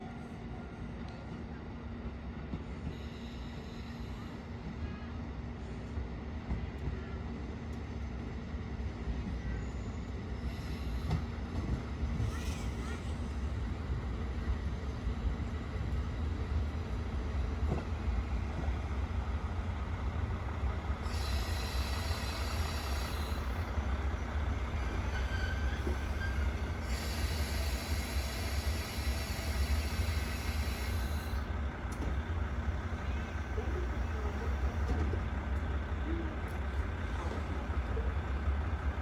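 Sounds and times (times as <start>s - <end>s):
low train engine rumble: 0.0s - 39.0s
high-pitched wheel squeal: 25.0s - 26.6s.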